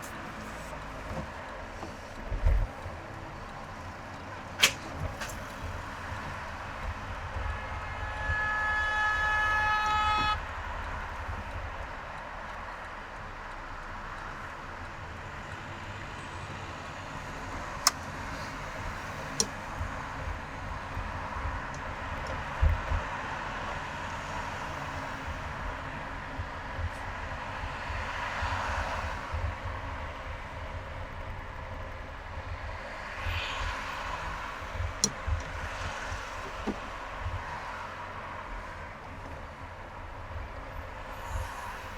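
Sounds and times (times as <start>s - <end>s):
road traffic noise: 0.0s - 41.9s
sharp clicks: 4.2s - 5.7s, 17.8s - 19.8s
vehicle horn honk: 7.4s - 10.5s.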